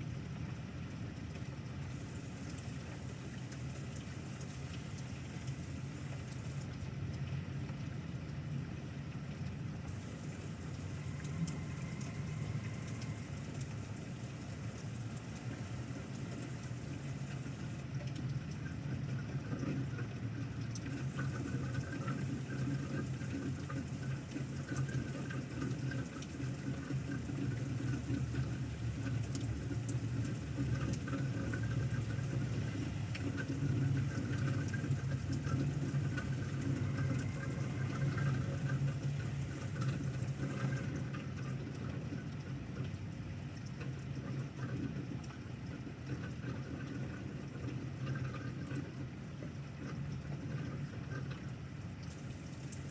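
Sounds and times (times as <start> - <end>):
pouring rain: 0.0 - 52.9
water running: 9.9 - 41.9.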